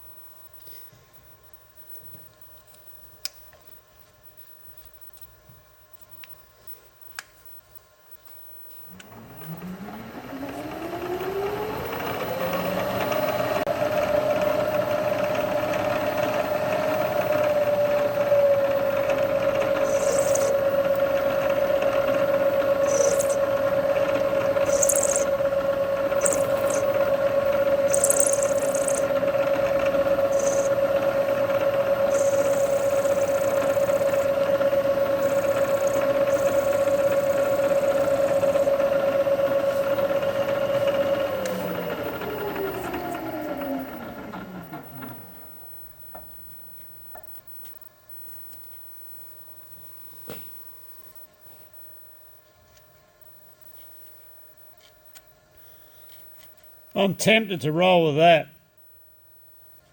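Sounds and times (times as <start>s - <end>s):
spindle motor whine: 8.4s - 51.6s
high-pitched hissing cutting bursts: 19.8s - 20.6s, 22.8s - 23.4s, 24.6s - 25.3s, 26.2s - 27.0s, 27.9s - 29.1s, 30.3s - 30.8s, 32.1s - 34.3s.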